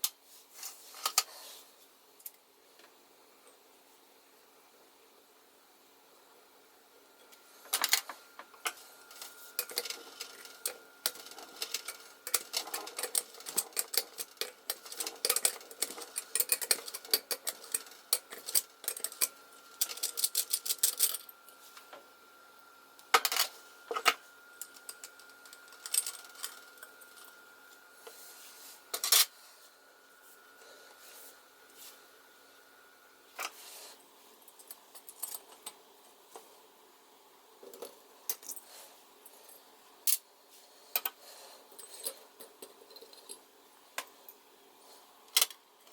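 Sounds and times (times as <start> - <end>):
metal parts clinking: 9.1 - 21.3.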